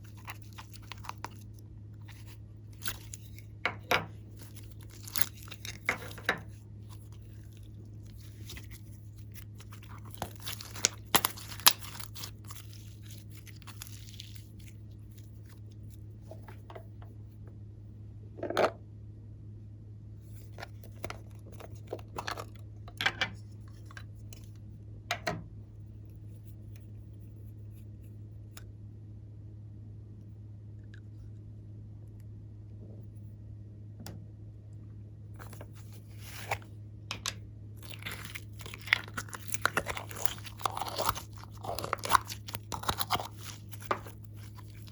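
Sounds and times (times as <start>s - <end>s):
steady low hum: 0.0s - 44.9s
slime popping and crackling: 4.4s - 6.2s, 6.9s - 14.7s, 37.8s - 44.9s.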